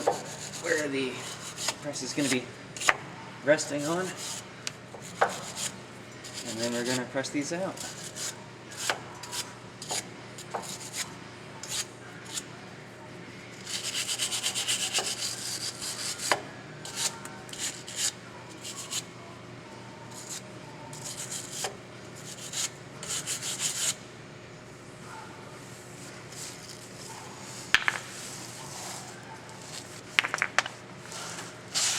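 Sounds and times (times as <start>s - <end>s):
scrubbing metal by hand: 13.6s - 19.1s, 20.1s - 24.0s.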